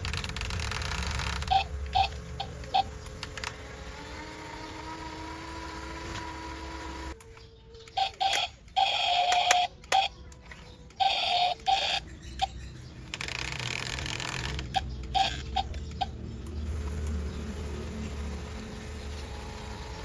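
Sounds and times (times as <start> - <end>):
small electric motors buzzing: 0.0 - 7.2, 16.5 - 20.0.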